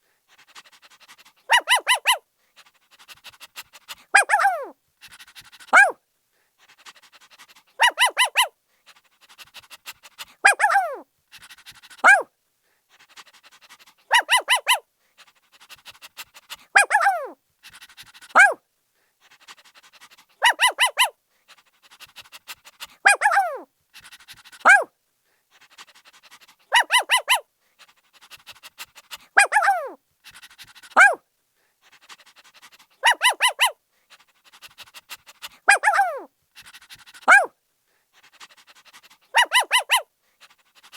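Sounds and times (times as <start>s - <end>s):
puppy yipping and yelping: 1.5s - 2.2s, 3.9s - 6.0s, 7.4s - 8.6s, 10.4s - 11.0s, 11.8s - 12.3s, 14.0s - 14.8s, 16.8s - 17.4s, 18.3s - 18.6s, 20.4s - 21.2s, 22.1s - 24.9s, 25.8s - 27.5s, 28.2s - 31.2s, 32.1s - 37.5s, 38.8s - 40.1s.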